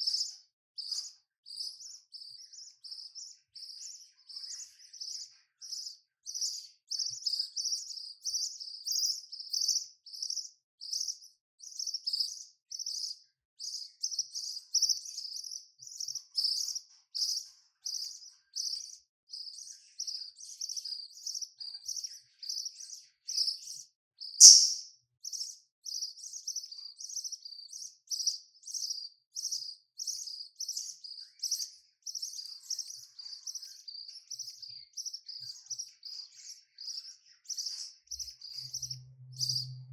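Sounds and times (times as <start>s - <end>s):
budgerigars chirping: 24.4s - 24.8s.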